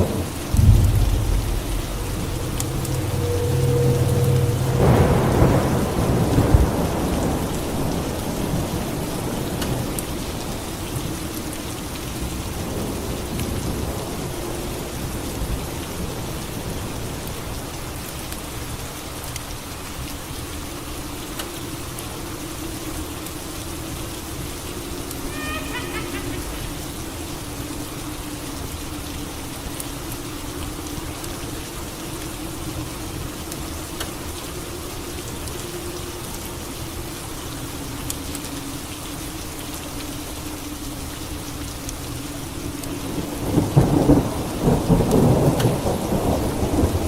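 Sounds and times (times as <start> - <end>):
thunder rumbling: 0.0 - 9.9, 24.3 - 27.8
rain falling: 0.0 - 47.0.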